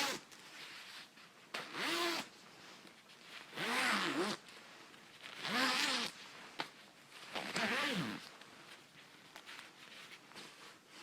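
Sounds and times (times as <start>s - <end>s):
light fabric rustling: 0.0s - 11.0s
coat zipper pulled fast: 1.7s - 2.3s, 3.6s - 4.4s, 5.4s - 6.2s, 7.4s - 8.3s.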